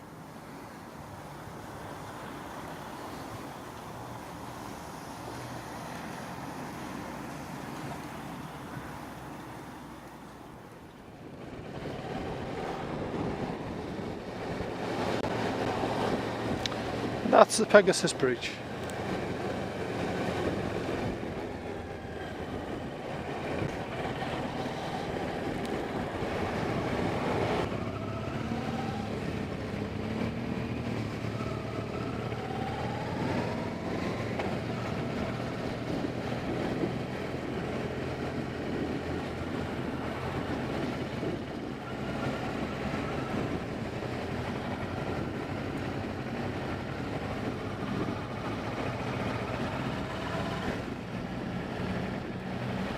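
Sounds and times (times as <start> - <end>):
wind noise: 11.0 - 52.9
motorcycle engine: 18.5 - 52.9.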